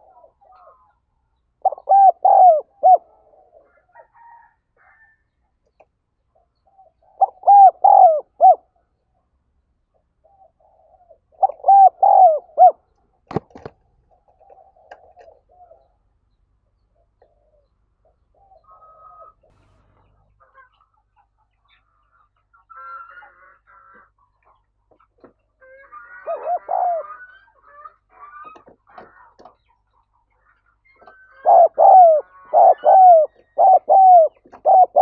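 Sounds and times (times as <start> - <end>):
dove cooing: 0.0 - 1.0, 1.6 - 4.4, 6.7 - 8.8, 10.2 - 15.9, 26.1 - 27.3, 31.0 - 35.0
faint bird calls: 0.0 - 5.1, 6.4 - 8.8, 10.2 - 13.0, 30.8 - 35.0.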